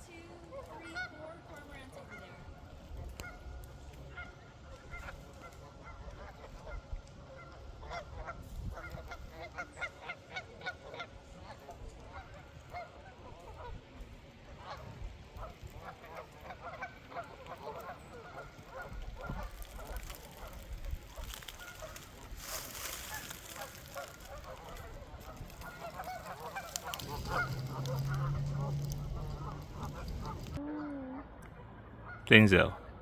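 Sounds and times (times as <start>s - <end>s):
waterfowl honking and quacking: 4.1s - 13.8s, 14.6s - 30.6s.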